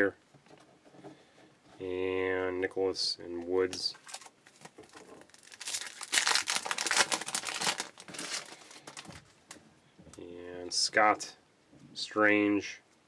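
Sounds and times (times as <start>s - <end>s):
wrapper tearing and crinkling: 4.0s - 9.2s.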